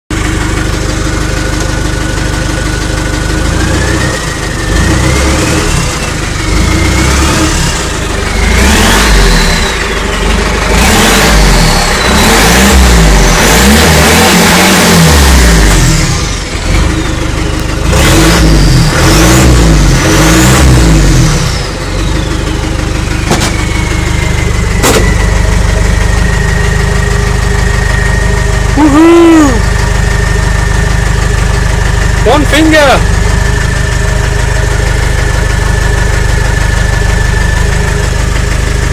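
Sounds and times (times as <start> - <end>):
diesel engine revving: 0.1 - 38.9
turbo whistle: 28.8 - 29.6.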